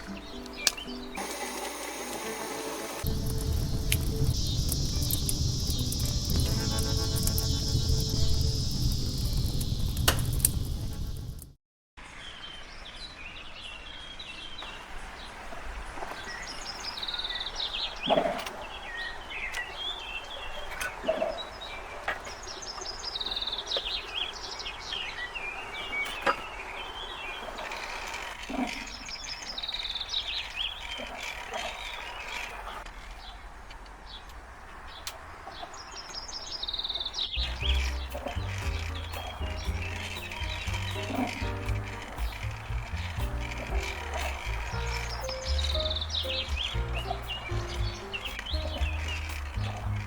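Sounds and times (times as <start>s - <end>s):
songbird singing high notes: 0.0s - 10.0s, 36.6s - 50.0s
steady outdoor hiss: 0.0s - 50.0s.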